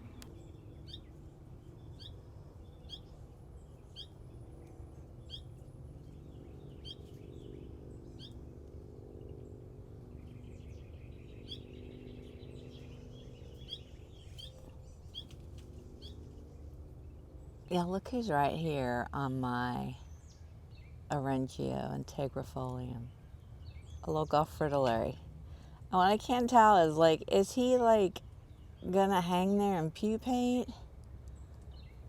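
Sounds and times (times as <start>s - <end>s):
small bird chirping: 0.0s - 8.5s, 10.2s - 16.8s
steady low hum: 0.0s - 32.0s.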